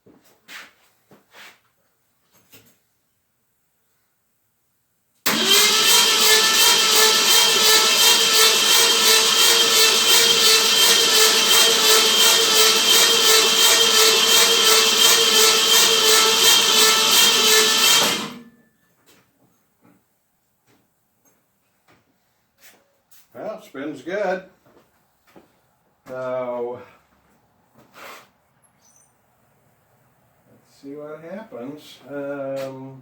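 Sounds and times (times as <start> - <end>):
starter motor cranking engine: 5.3 - 18.5.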